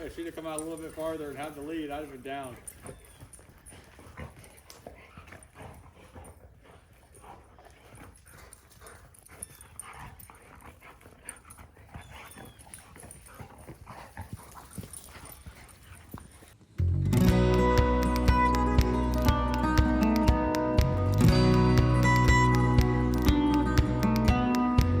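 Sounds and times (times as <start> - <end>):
dog whining softly: 9.3 - 10.2, 11.7 - 13.4.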